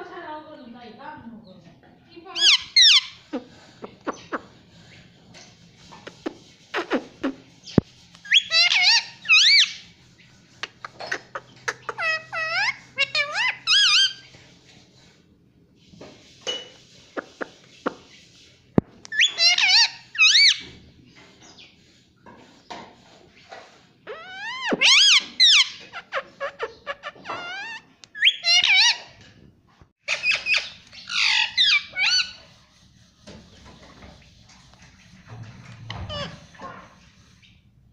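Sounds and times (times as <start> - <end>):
parakeet squawking and chirping: 2.3 - 5.1, 6.1 - 14.3, 16.5 - 18.5, 19.1 - 20.7, 24.1 - 29.2, 30.0 - 33.2, 35.8 - 36.6.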